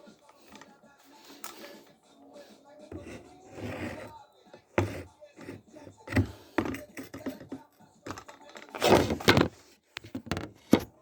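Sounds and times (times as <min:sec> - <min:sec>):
objects knocking and clattering: 0:06.0 - 0:11.0.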